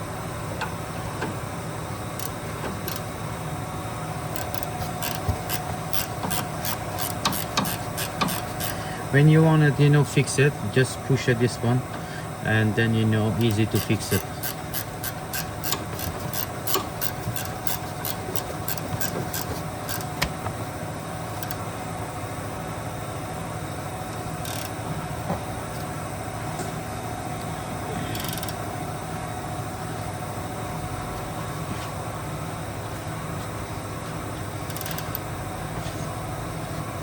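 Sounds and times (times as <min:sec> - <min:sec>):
steady mechanical hum: 0:00.0 - 0:37.0
ratchet wrench clicking: 0:02.2 - 0:03.0, 0:04.3 - 0:08.8, 0:13.4 - 0:20.1, 0:21.4 - 0:21.6, 0:24.4 - 0:24.8, 0:28.2 - 0:28.6, 0:34.7 - 0:35.2.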